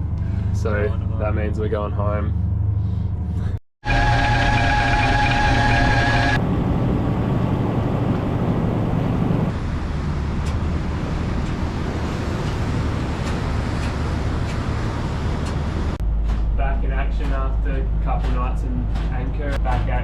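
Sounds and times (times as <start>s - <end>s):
boat engine rumble: 0.0s - 20.0s
steady whine: 3.8s - 19.8s.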